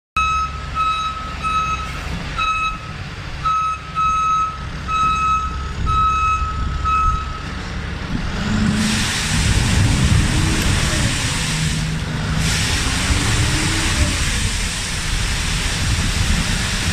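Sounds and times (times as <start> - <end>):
back-up alarm beeping: 0.2 - 7.6
engine running: 0.2 - 16.9
hiss: 8.6 - 16.9.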